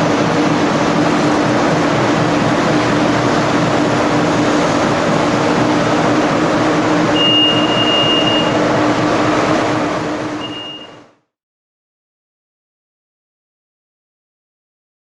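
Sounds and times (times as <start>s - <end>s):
industrial vacuum cleaner running: 0.0s - 11.1s
thin high whistle: 7.1s - 8.6s, 10.4s - 11.0s.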